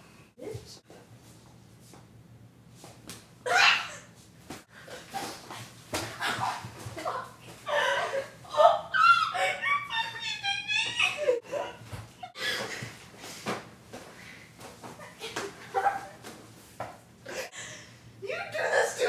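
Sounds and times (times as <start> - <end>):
girls laughing and giggling: 6.1 - 13.0, 14.8 - 16.3.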